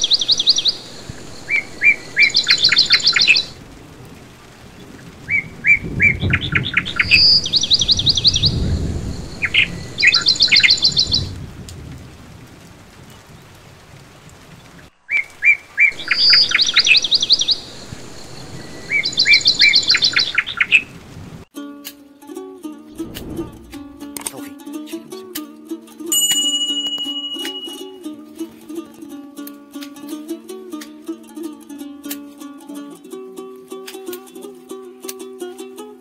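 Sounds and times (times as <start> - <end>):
songbird chirps and trills: 0.0 - 11.5, 14.4 - 21.5, 26.2 - 34.2
low rumble: 22.9 - 24.3.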